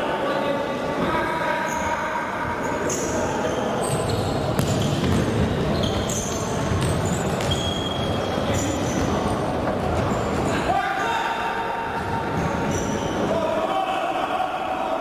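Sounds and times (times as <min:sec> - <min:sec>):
sports hall noise: 0:00.0 - 0:15.0
shoes squeaking on court floor: 0:02.8 - 0:10.6
players shouting: 0:13.2 - 0:15.0.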